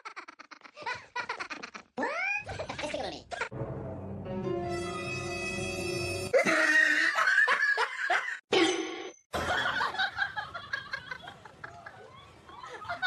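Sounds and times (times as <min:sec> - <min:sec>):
laughter in choppy bursts: 0:00.0 - 0:03.5, 0:09.4 - 0:13.0.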